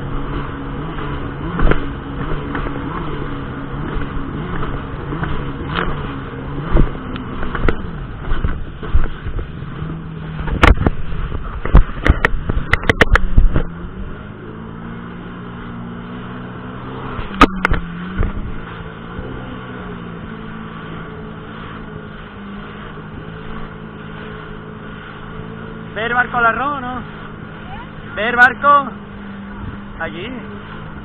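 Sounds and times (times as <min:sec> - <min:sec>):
jet ski engine running: 0:00.0 - 0:31.0
sharp thumps: 0:17.2 - 0:18.6.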